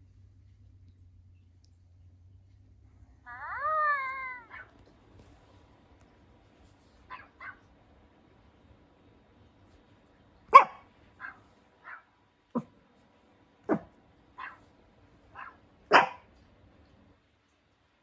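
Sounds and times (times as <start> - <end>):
dog yipping: 3.3 - 4.8, 7.1 - 7.6, 10.5 - 12.7, 13.7 - 14.6, 15.3 - 16.3
dog barking sharply: 7.1 - 7.6, 10.5 - 12.7, 13.7 - 14.6, 15.3 - 16.3.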